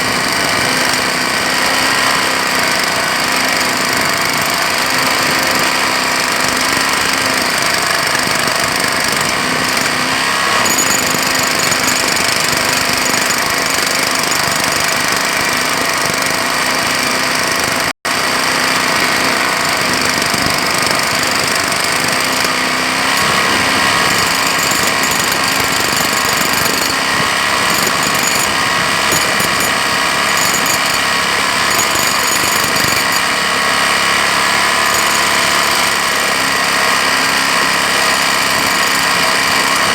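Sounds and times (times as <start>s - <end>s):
jackhammer hammering: 9.0s - 17.2s, 20.0s - 36.6s.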